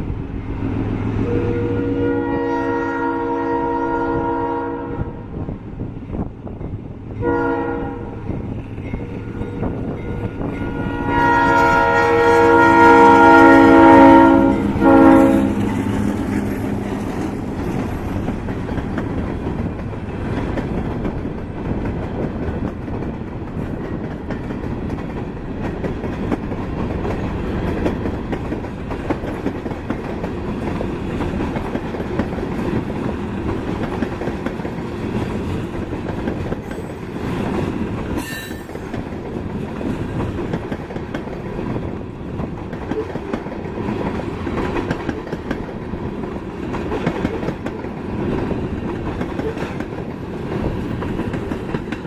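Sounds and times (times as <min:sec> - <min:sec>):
freight train rumble and clatter: 0:00.0 - 0:52.0
train horn: 0:01.2 - 0:05.3, 0:07.2 - 0:08.3, 0:09.2 - 0:17.4
faint squeal: 0:38.2 - 0:38.9.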